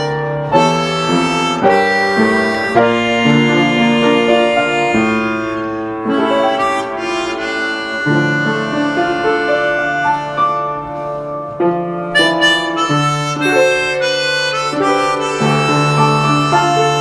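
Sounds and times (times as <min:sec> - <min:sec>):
harmonica melody: 0:00.0 - 0:17.0.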